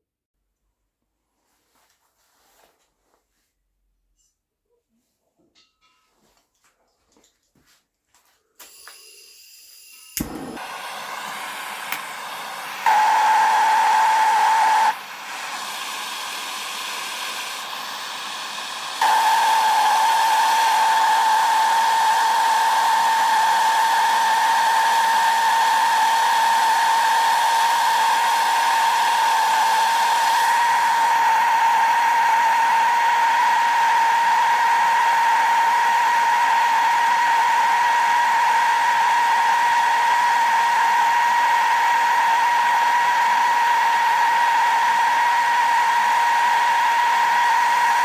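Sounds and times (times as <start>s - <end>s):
electric grinder whining: 10.2s - 48.0s.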